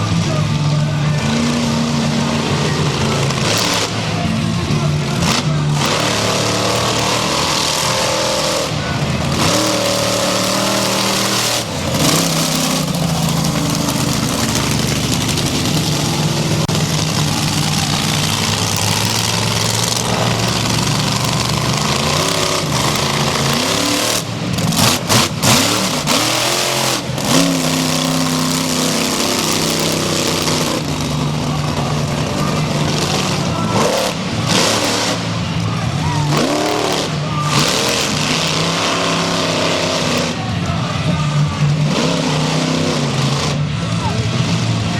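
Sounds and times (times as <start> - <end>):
truck engine revving: 0.0 - 44.9.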